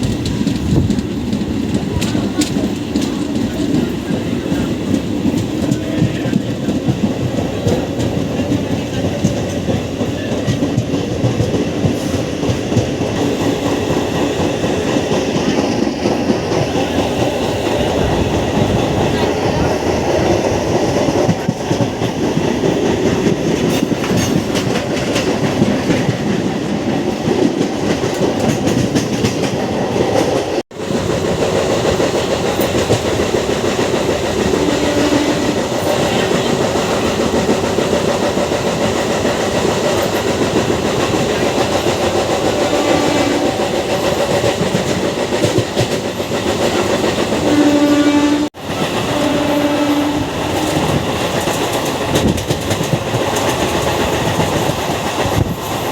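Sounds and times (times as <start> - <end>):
train wheels clattering: 0.0 - 55.9
train horn blasts: 34.6 - 35.6, 42.6 - 43.6, 47.5 - 50.9.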